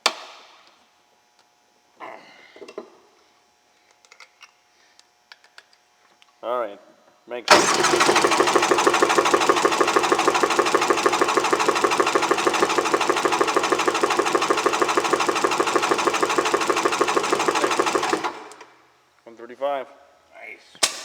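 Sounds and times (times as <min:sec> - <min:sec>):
engine cranking on starter: 0:07.5 - 0:18.8.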